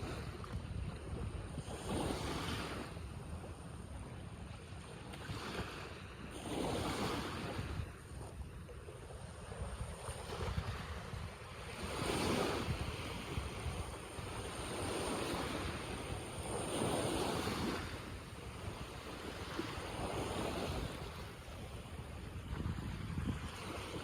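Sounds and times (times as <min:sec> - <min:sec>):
sea waves washing ashore: 0:00.0 - 0:24.0
wind rumbling on microphone: 0:00.0 - 0:24.0.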